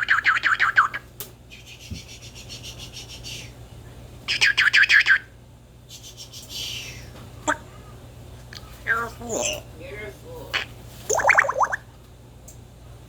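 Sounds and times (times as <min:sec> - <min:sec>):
parrot chirping rapid notes: 0:11.1 - 0:11.8.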